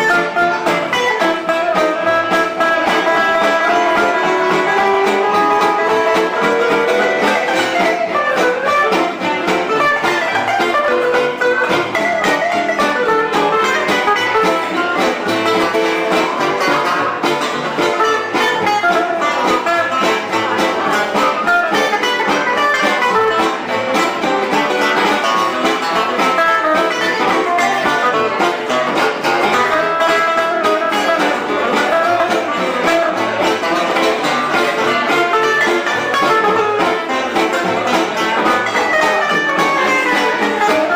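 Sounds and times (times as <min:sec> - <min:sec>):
live band with plucked guitars: 0:00.0 - 0:40.9.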